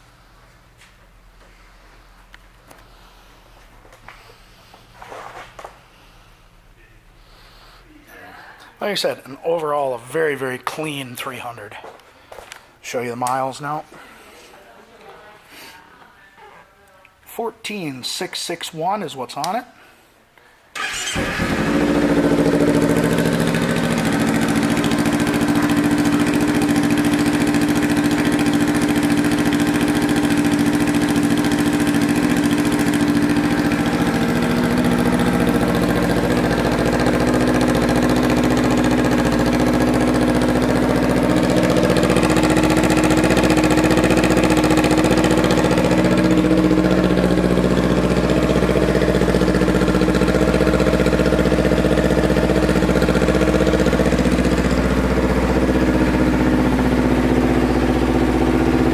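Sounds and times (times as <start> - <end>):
motorcycle engine starting and idling: 20.8 - 58.9.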